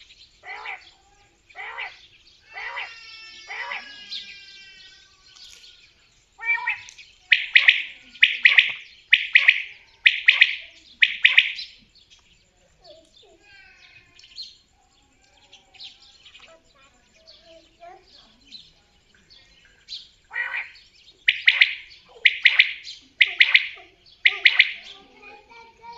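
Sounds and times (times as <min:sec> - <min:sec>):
quail calling: 0:00.0 - 0:04.4, 0:06.4 - 0:11.8, 0:20.3 - 0:25.3
soft descending bird calls: 0:00.0 - 0:11.9, 0:20.2 - 0:25.9.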